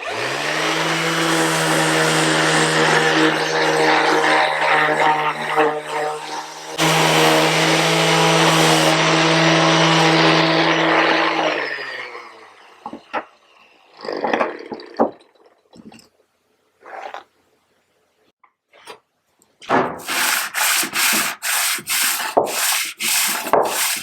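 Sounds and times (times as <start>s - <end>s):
electric motor running: 0.0s - 12.8s.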